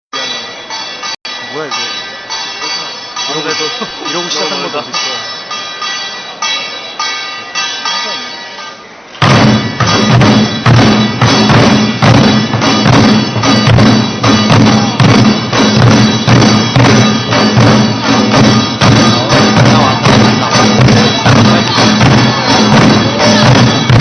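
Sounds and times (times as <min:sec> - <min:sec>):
barrel drums struck hard: 0:09.2 - 0:24.0.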